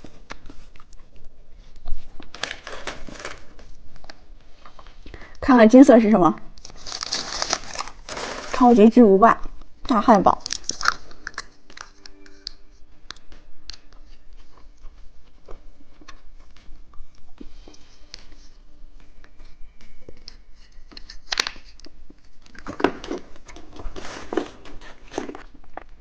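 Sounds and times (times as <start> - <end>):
candy packaging crinkling: 6.6 - 9.5, 10.2 - 12.0.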